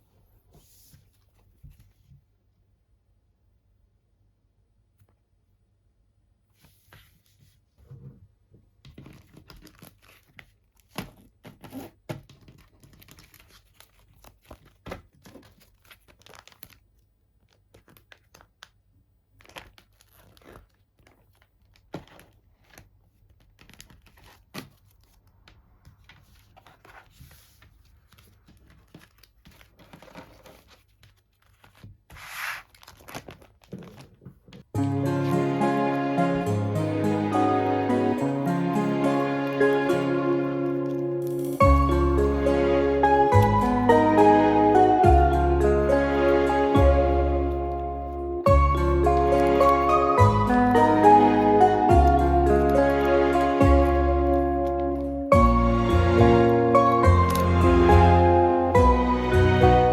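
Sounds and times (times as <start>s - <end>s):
packaging rustling and crinkling: 8.9s - 34.6s.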